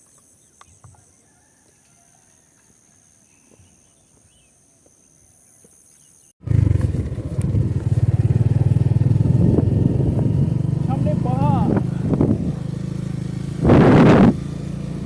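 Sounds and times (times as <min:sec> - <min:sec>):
motorcycle engine rumble: 0:06.4 - 0:15.0
wind noise: 0:06.9 - 0:14.6.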